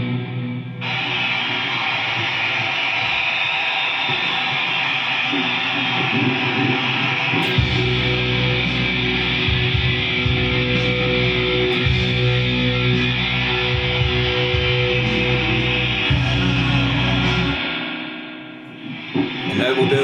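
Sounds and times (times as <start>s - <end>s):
electric guitar chord: 6.2s - 20.0s
heavy bass and drums: 7.5s - 17.6s.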